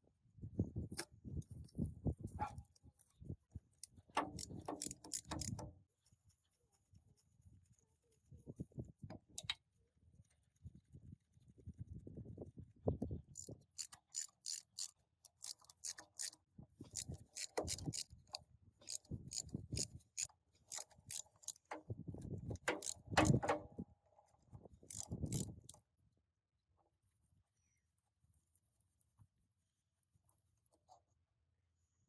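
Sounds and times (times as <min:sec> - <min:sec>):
metal parts clicking: 0:03.8 - 0:05.7, 0:13.4 - 0:21.8, 0:22.4 - 0:23.7, 0:24.9 - 0:25.8
dull knocks of metal parts: 0:04.2 - 0:05.7, 0:22.5 - 0:23.8.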